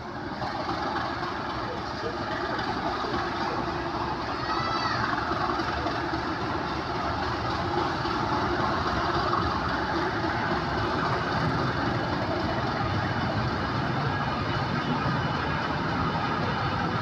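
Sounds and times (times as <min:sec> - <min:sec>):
diesel locomotive engine: 0:00.0 - 0:17.0
train wheels rumbling on rails: 0:00.0 - 0:17.0.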